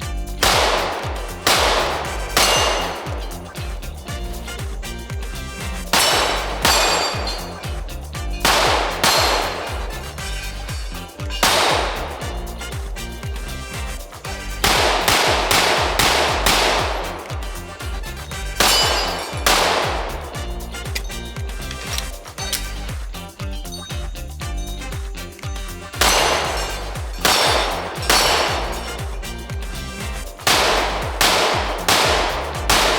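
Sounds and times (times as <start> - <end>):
background music with steady beat: 0.0 - 32.9
pistol shots: 0.4 - 3.8, 5.7 - 7.8, 8.4 - 12.4, 14.3 - 20.1, 26.0 - 29.1, 30.1 - 32.9.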